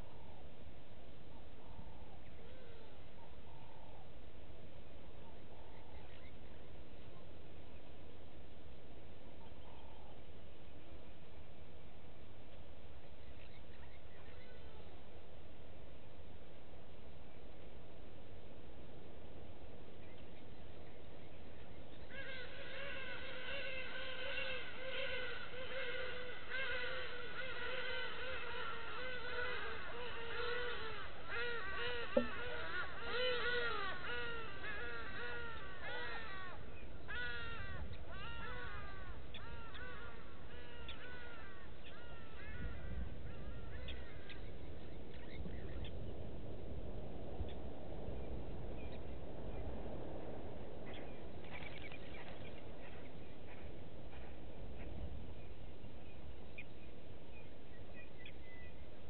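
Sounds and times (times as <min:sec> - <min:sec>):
birds making harsh calls: 0:21.9 - 0:46.0.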